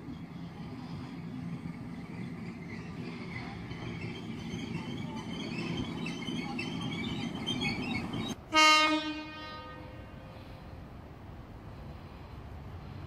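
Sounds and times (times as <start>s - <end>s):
electric train rumbling past: 0.0s - 13.0s
train horn blast: 8.5s - 10.5s.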